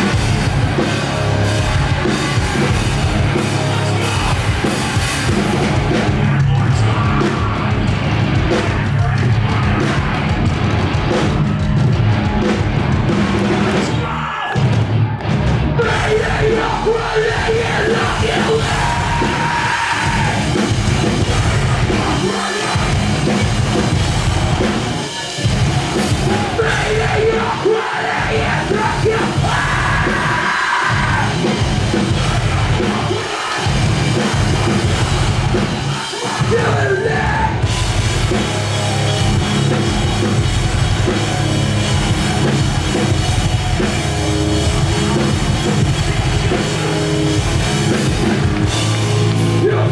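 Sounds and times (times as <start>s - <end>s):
distorted guitars: 0.0s - 49.9s
pounding drums: 0.0s - 49.9s
screamed vocals: 13.7s - 14.8s, 15.8s - 23.4s, 26.0s - 31.5s, 32.1s - 37.7s.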